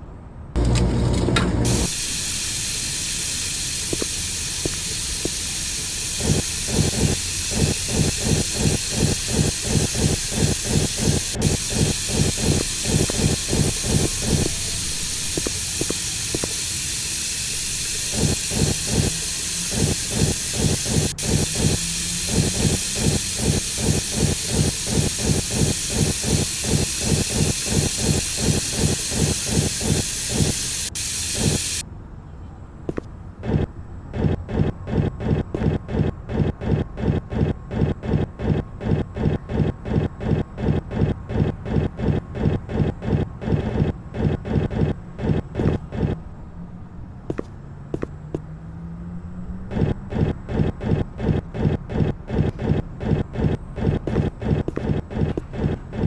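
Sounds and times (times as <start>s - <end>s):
washing machine churning: 0.6s - 2.7s.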